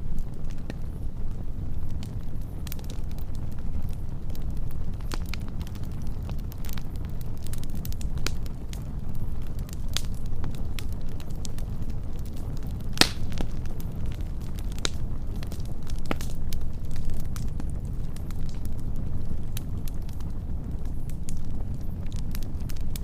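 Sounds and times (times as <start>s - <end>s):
fire crackling and popping: 0.0s - 23.0s
low rumble of fire: 0.0s - 23.0s.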